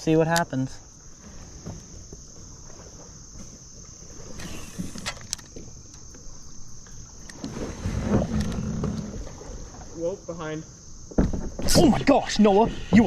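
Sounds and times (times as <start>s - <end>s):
insects chirring: 0.0s - 13.0s
brief hiss: 4.3s - 5.2s.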